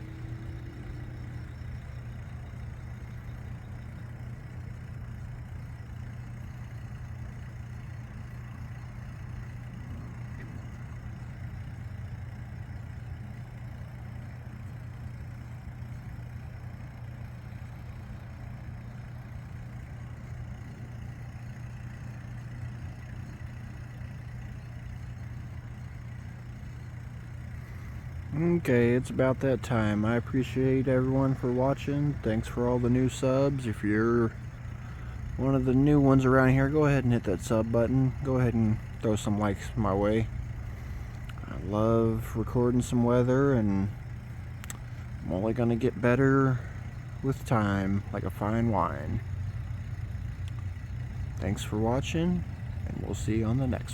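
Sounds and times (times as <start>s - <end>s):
aeration pump humming: 0.0s - 53.9s.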